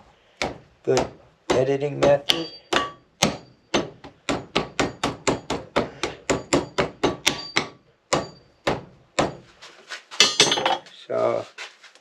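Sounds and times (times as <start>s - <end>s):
hammer tapping metal spoke: 0.4s - 9.4s.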